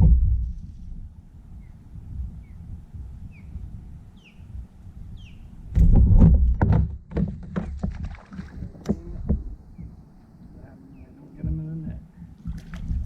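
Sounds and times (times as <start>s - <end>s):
loud low rumbling: 0.0s - 2.3s
bird chirping: 3.3s - 3.6s, 4.2s - 5.6s, 9.6s - 11.5s
gear knocking on kayak hull: 5.8s - 10.0s, 11.4s - 13.0s.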